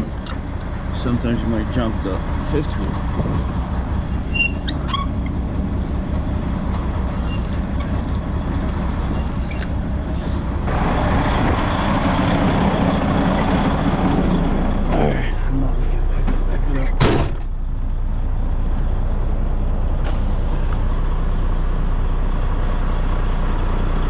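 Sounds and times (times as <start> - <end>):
diesel engine idling: 0.0 - 24.0
air hissing: 9.4 - 10.6, 20.0 - 21.0.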